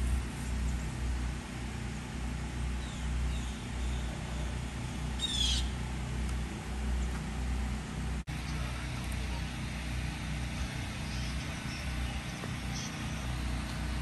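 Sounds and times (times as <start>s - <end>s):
steady low rumble: 0.0s - 14.0s
bird call with falling notes: 2.8s - 5.8s.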